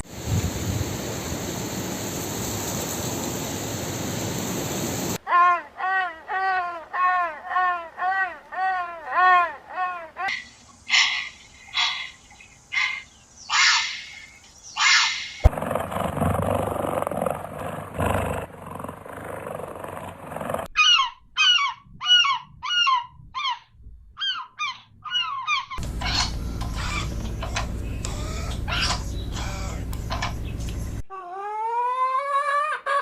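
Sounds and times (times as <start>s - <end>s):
short falling animal calls: 5.3s - 15.5s, 24.6s - 30.5s
harsh honking animal calls: 25.8s - 31.0s
steady noise: 25.8s - 31.0s.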